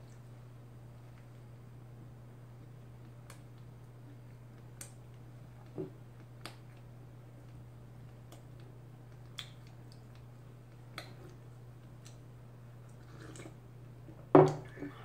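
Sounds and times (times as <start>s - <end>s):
steady low hum: 0.0s - 15.0s
mouth clicks and lip smacks: 6.2s - 12.2s.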